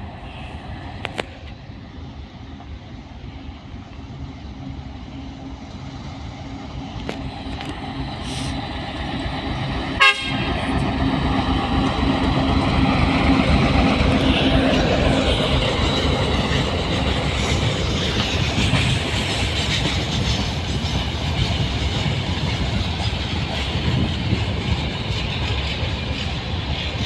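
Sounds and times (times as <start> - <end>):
train rumbling: 0.0 - 27.0
train horn toot: 10.0 - 10.7.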